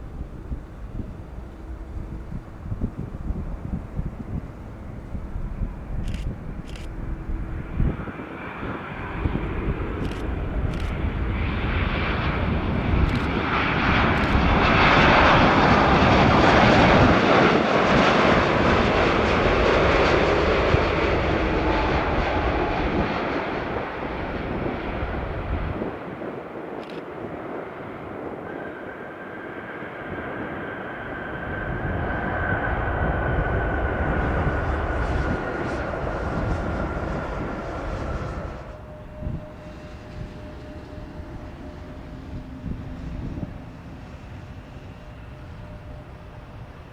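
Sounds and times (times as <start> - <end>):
steady high whine: 0.0 - 16.8, 26.8 - 46.9
jet airliner passing by: 0.0 - 46.9.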